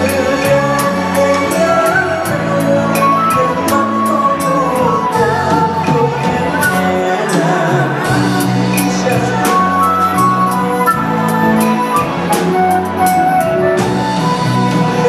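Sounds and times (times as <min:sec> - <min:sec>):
live band ballad: 0:00.0 - 0:15.0.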